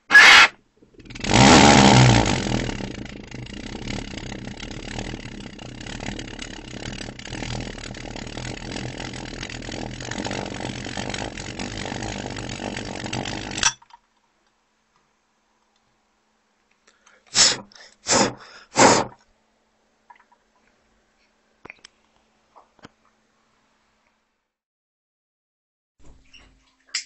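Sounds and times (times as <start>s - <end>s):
pulse jet engine buzzing: 0.0s - 13.7s.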